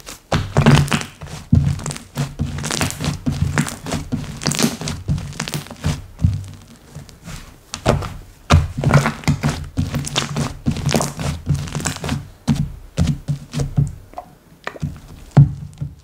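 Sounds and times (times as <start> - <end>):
slime squishing and popping: 1.8 - 5.9, 7.8 - 12.2.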